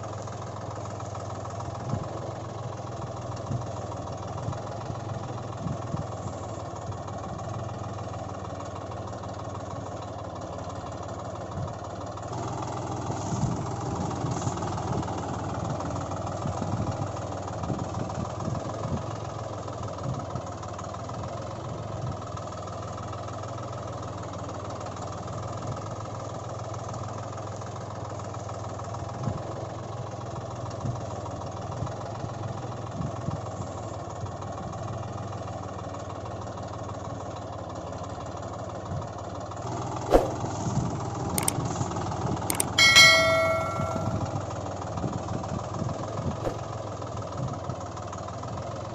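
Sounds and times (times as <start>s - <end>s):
sharp clicks: 42.5s - 44.3s
bell-like metallic ring: 42.5s - 44.5s.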